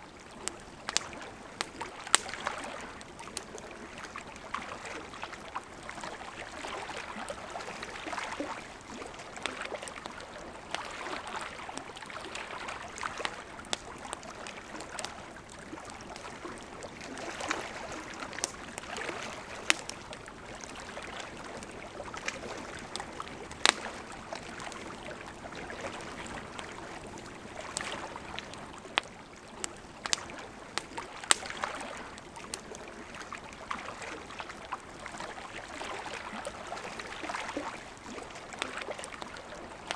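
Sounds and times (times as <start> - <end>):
campfire wood crackling: 0.1 - 39.9.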